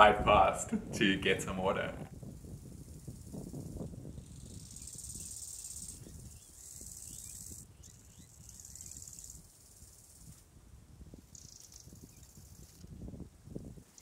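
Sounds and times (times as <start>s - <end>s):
wind rumble on microphone: 0.0s - 14.0s
insects buzzing: 2.1s - 14.0s
faint bird chirps: 4.2s - 10.4s, 11.3s - 12.9s.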